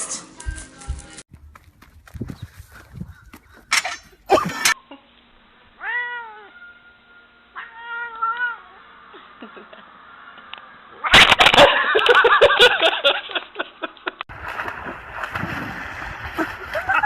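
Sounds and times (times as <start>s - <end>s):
cat meowing: 5.8s - 6.8s, 7.6s - 8.8s.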